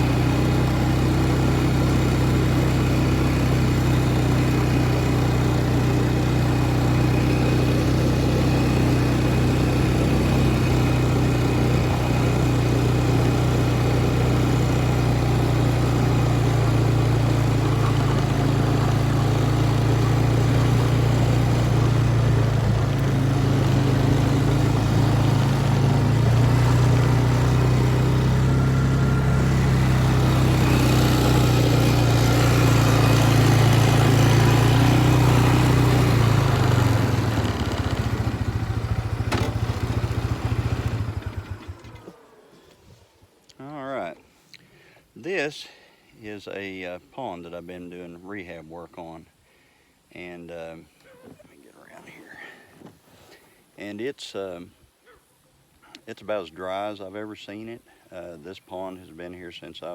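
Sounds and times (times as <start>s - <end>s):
vehicle engine humming: 0.0s - 44.2s.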